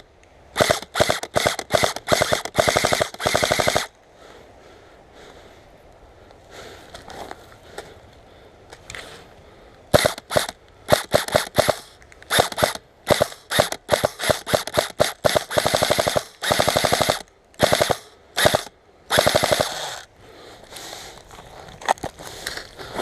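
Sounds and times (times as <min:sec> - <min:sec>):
airsoft gun firing bursts: 0:00.6 - 0:03.9, 0:09.9 - 0:20.1.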